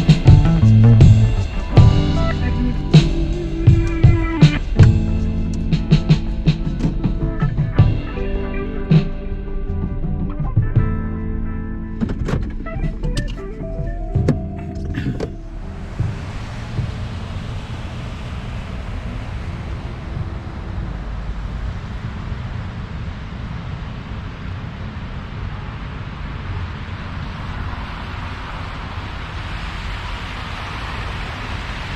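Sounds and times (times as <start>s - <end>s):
car road rumble: 0.0s - 31.9s
tyre hiss on snow: 26.4s - 31.9s.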